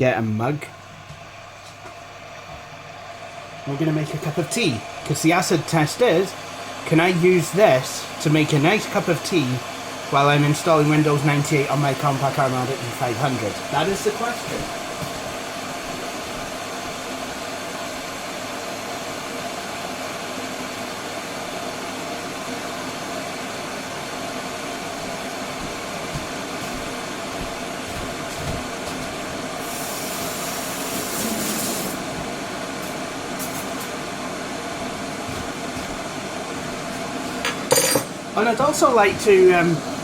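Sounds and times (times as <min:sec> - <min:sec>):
kettle heating water: 0:00.0 - 0:40.0
loud high hiss: 0:29.5 - 0:34.3.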